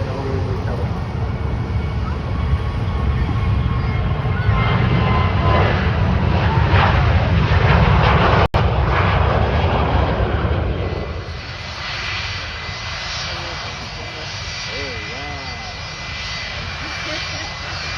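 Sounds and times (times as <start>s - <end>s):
jet airliner engines roaring: 0.0s - 17.9s.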